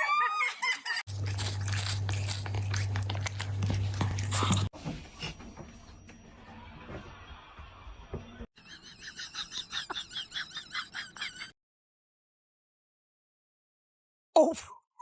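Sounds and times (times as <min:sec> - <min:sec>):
close-up chewing and crunching: 0:01.1 - 0:04.8.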